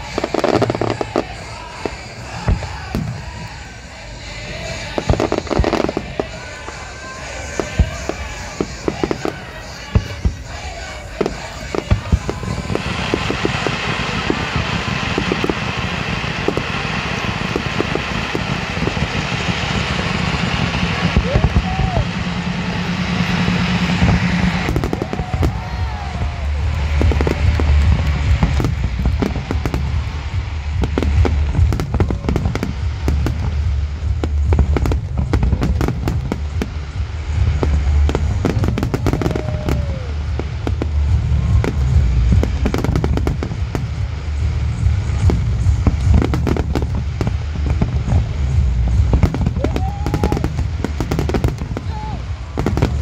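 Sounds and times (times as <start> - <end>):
low rumble: 0.0 - 53.0.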